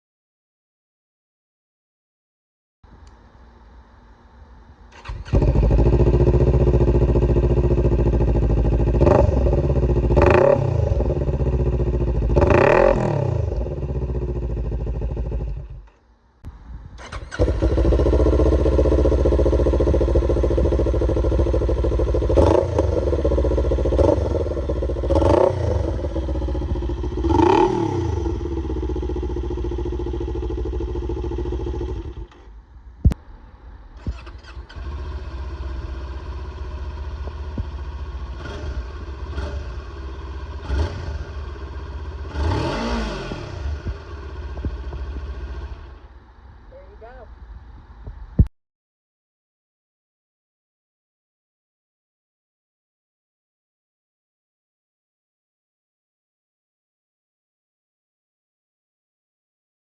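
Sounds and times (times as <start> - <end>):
motorcycle engine revving: 4.9 - 16.0, 17.0 - 33.4, 34.0 - 46.2.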